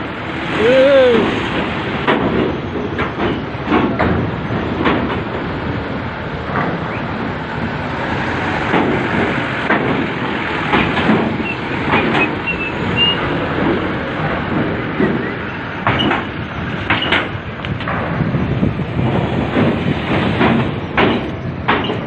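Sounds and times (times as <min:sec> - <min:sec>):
heavy trucks rumbling: 0:00.0 - 0:22.0
metallic clanks on loading ramp: 0:02.0 - 0:05.4, 0:14.5 - 0:18.2, 0:19.0 - 0:22.0.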